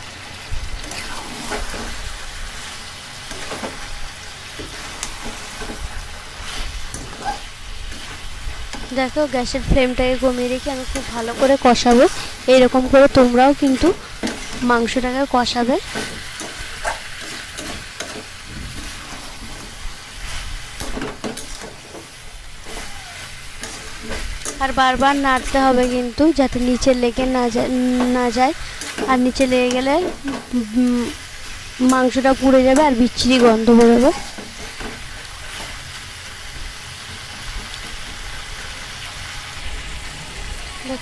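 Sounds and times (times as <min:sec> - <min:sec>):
chicken sizzling in oil: 0:00.0 - 0:41.0
spatula scraping and knocking pan: 0:10.7 - 0:19.8, 0:20.7 - 0:30.6
metal spatula scraping and knocking pan: 0:15.8 - 0:19.8.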